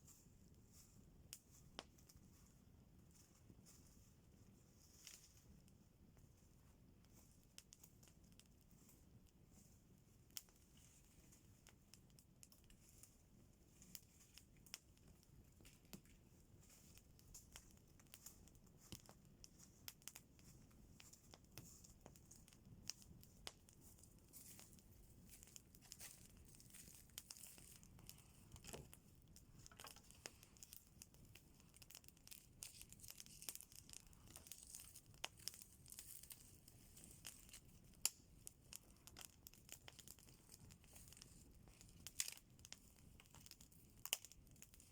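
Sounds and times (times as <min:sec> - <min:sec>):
campfire crackling: 0:10.0 - 0:44.9.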